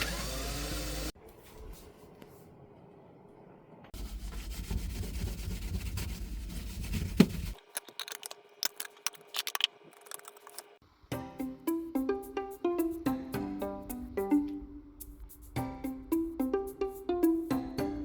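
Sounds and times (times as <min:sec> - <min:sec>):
rubbing and scraping: 0:04.0 - 0:10.8
music: 0:11.1 - 0:18.0.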